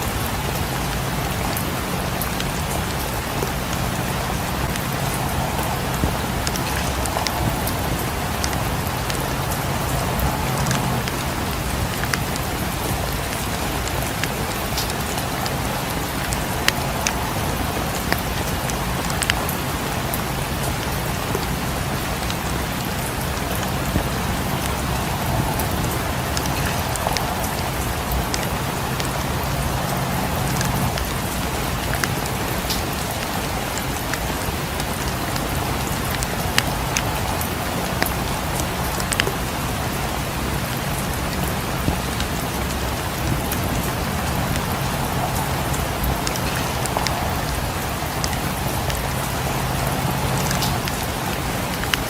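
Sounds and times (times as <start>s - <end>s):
steady rain falling: 0.0s - 52.0s
wood fire crackling: 0.0s - 52.0s.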